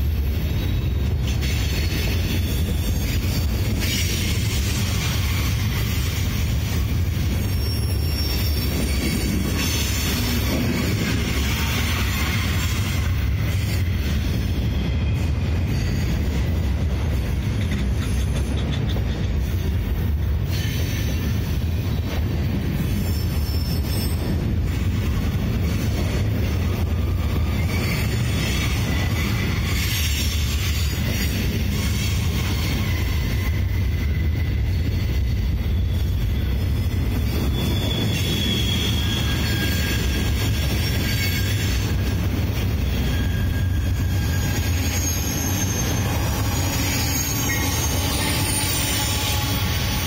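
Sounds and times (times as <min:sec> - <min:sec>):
high wheel squeal: 0:00.0 - 0:16.7, 0:22.8 - 0:50.0
train wheels rumbling on rails: 0:00.0 - 0:50.0.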